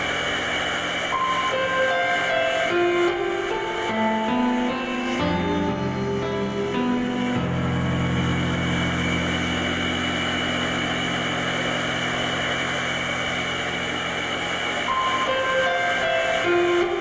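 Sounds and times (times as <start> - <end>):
low electronic drone: 5.0 - 15.4.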